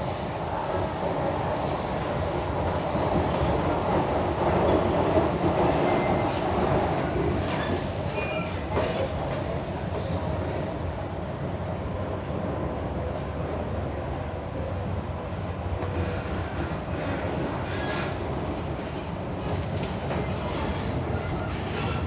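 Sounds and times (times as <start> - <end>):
train wheels rumbling on track: 0.0 - 22.0
faint high wheel squeals: 7.5 - 8.7, 10.8 - 11.8.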